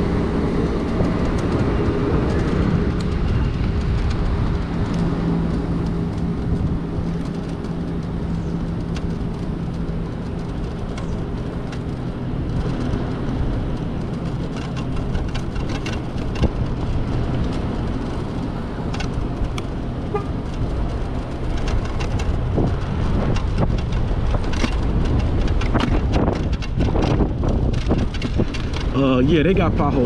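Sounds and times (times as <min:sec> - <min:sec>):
electric motorbike hum: 0:00.0 - 0:30.0
street traffic: 0:00.0 - 0:30.0
knocks and rattles of bike jolting: 0:00.1 - 0:30.0
horn toot: 0:20.1 - 0:20.4.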